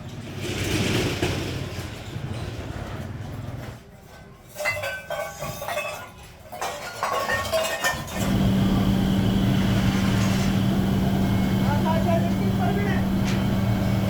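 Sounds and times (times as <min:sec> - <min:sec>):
machine humming: 0:08.1 - 0:14.0.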